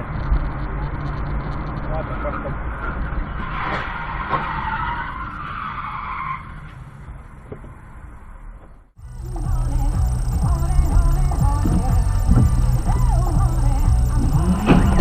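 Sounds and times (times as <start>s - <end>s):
engine and road rumble: 0.0s - 15.0s
car tyres skidding: 2.1s - 8.3s, 12.4s - 15.0s.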